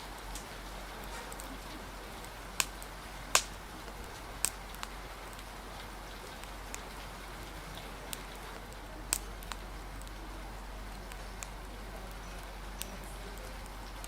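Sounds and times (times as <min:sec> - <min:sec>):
rain hissing: 0:00.0 - 0:14.0
wind: 0:00.0 - 0:14.0
sharp pops: 0:02.2 - 0:05.5, 0:07.8 - 0:10.2.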